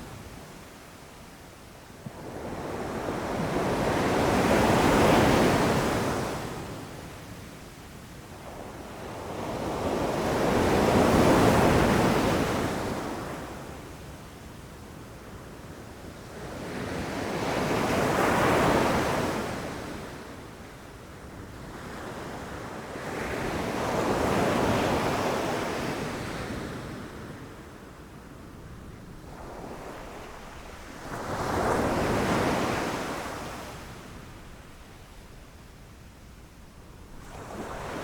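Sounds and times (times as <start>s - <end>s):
ocean waves crashing on shore: 29.0s - 35.7s, 36.8s - 38.0s.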